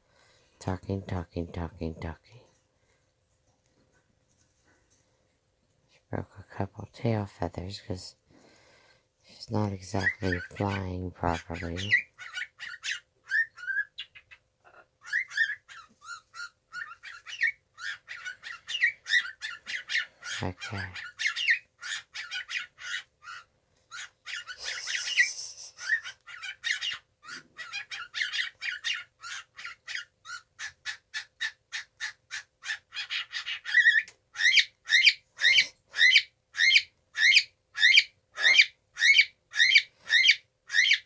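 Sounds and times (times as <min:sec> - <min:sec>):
young cockatiel chirping: 0:11.6 - 0:14.4, 0:15.0 - 0:25.2, 0:25.8 - 0:41.0.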